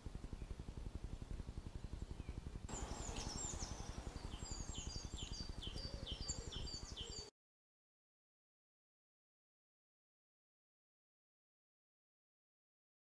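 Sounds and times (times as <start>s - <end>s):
small birds chirping: 0.0s - 7.3s
wind on microphone: 0.0s - 7.3s.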